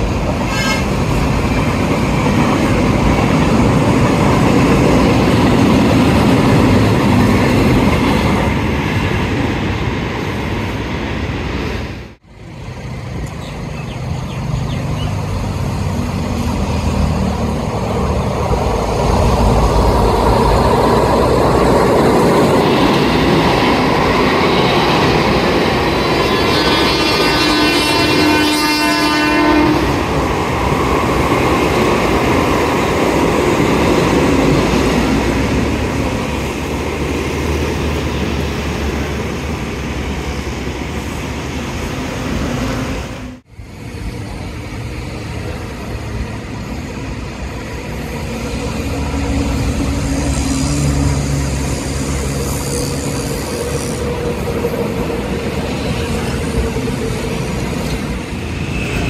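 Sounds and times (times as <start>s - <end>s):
train wheels rumbling on rails: 0.0s - 59.0s
train horn: 0.4s - 1.1s, 26.2s - 30.2s.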